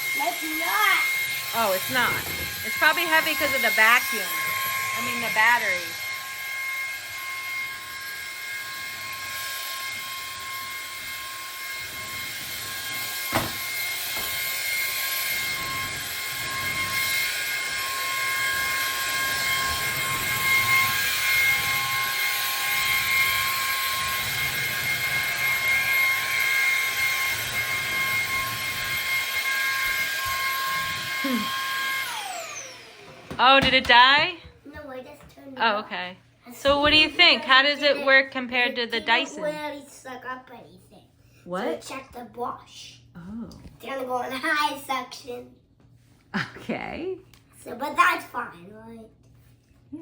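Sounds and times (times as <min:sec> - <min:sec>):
stick vacuum whining: 0:00.0 - 0:34.6.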